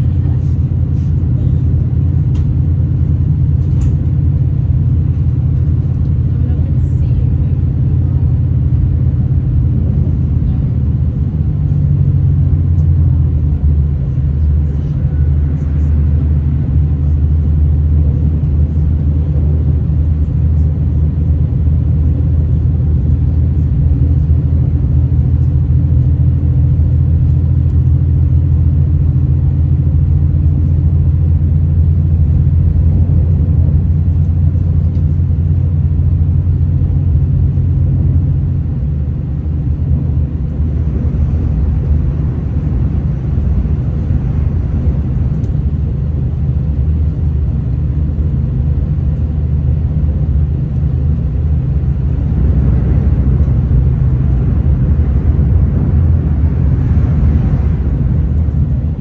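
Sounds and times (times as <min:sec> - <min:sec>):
train engine drone: 0:00.0 - 0:59.0.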